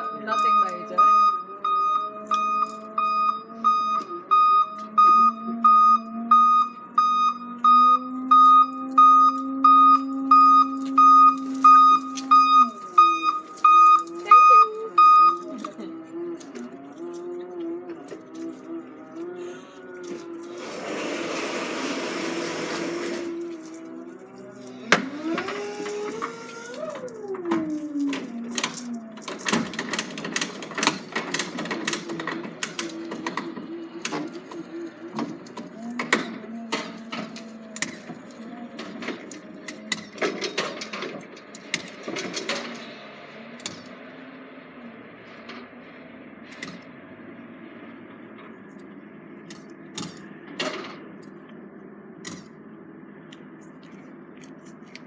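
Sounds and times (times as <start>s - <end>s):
electronic warning beeps: 0.0s - 15.8s
low engine hum: 0.0s - 21.4s
motor whining: 0.0s - 39.9s.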